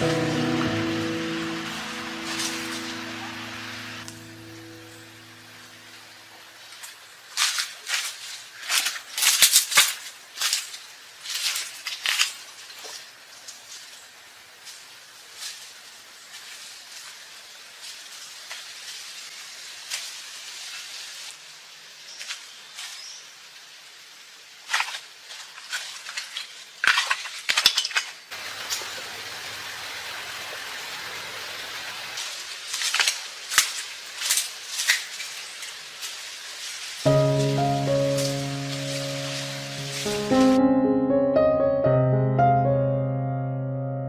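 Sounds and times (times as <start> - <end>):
music: 0.0 - 5.7, 37.1 - 44.0
steady hiss: 0.0 - 40.7.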